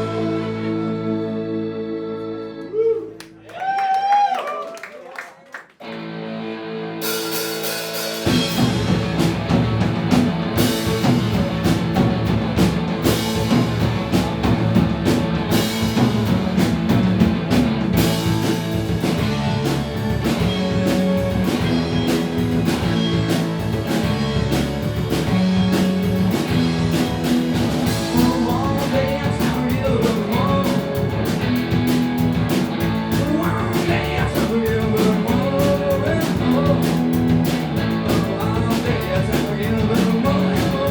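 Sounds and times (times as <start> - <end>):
live rock band playing: 0.0 - 2.6, 5.8 - 40.9
person singing: 0.0 - 3.2, 27.8 - 31.4, 33.0 - 37.2, 38.0 - 40.9.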